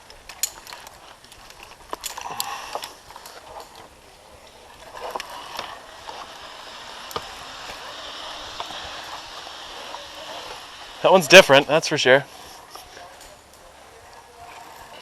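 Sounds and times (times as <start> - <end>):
metal clicks of climbing gear: 0.0 - 11.0, 12.4 - 15.0
hiss: 5.3 - 11.3.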